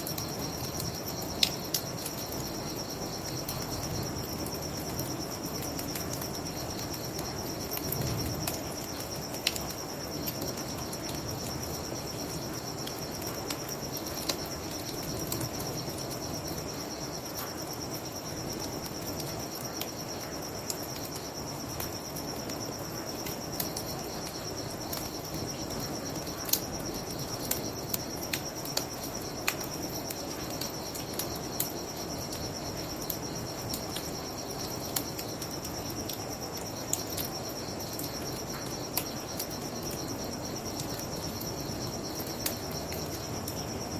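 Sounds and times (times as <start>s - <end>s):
crickets chirping: 0.0s - 43.9s
bonfire crackling and popping: 3.2s - 10.7s.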